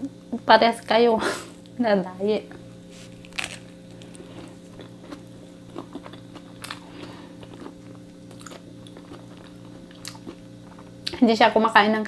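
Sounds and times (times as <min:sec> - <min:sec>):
steady low hum: 0:00.0 - 0:12.0
chewing sandwich: 0:02.5 - 0:11.1
soft crunches: 0:02.9 - 0:05.2.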